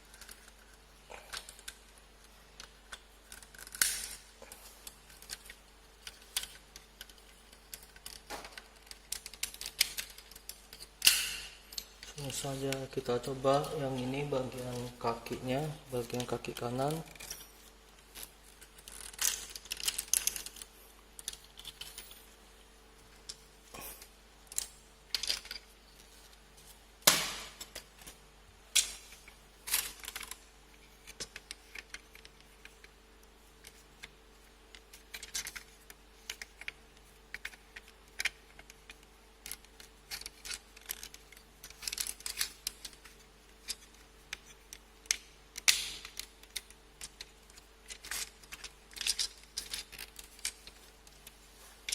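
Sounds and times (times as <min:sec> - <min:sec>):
plastic parts clicking together: 0:04.8 - 0:11.4, 0:34.7 - 0:51.9
plastic parts snapping: 0:34.7 - 0:51.2.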